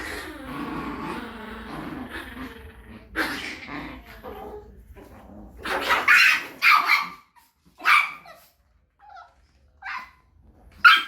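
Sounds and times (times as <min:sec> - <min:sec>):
dog barking: 0:05.7 - 0:08.4.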